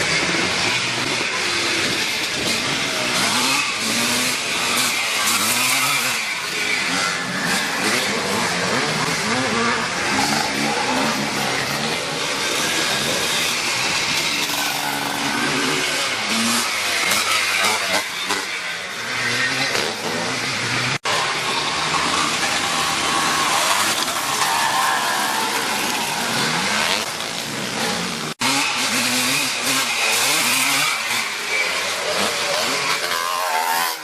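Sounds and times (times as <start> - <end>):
motocross motorcycles revving: 0.0 - 34.0.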